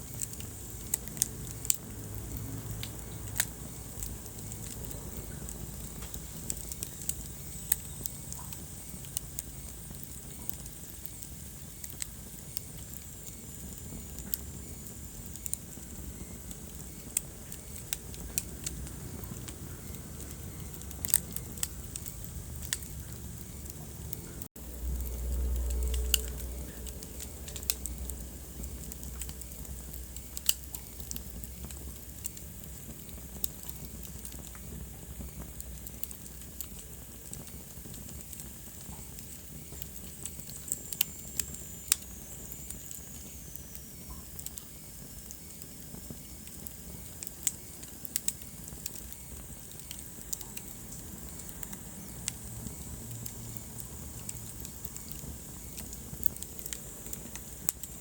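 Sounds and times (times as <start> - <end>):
soft steady hiss: 0.0 - 58.0
wood fire crackling and popping: 0.0 - 58.0
low rumble: 18.0 - 30.8.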